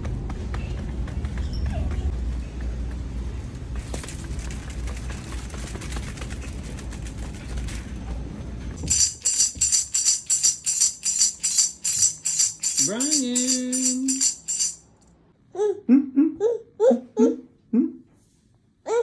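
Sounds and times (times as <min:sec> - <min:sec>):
tambourine jingle: 0:08.8 - 0:15.0.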